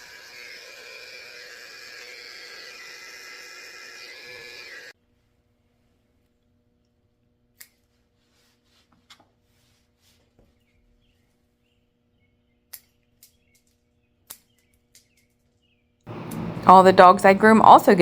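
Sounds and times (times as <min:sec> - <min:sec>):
faint room hum: 0:05.0 - 0:18.0.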